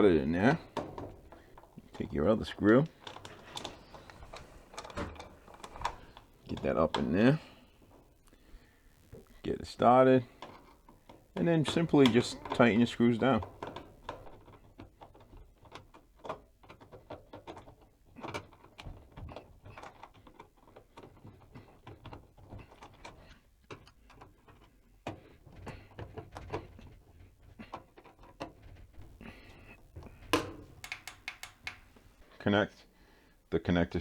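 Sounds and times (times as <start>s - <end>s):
screwdriver clicks: 30.3s - 31.9s.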